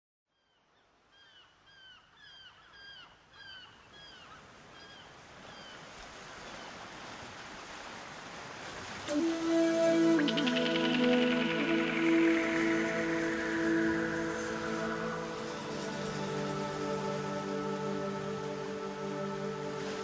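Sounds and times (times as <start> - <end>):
sea surf: 5.2 - 20.0.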